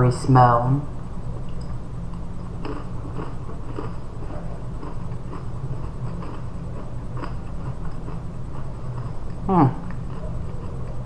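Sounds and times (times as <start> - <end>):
steady low hum: 0.0 - 11.0
crunching crackers: 2.5 - 11.0.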